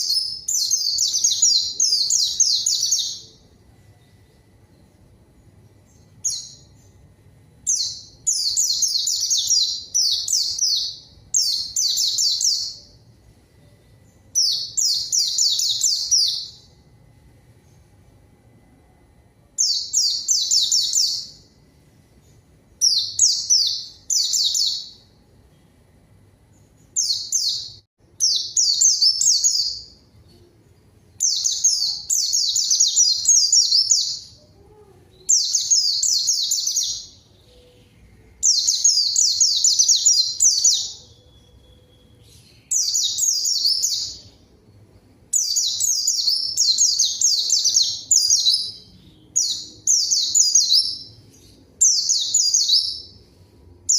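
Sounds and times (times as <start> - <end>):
bird twittering song: 0.0 - 3.4, 7.6 - 13.0, 13.6 - 16.8, 19.6 - 21.6, 22.2 - 25.8, 26.5 - 34.6, 35.2 - 44.5, 45.3 - 53.3.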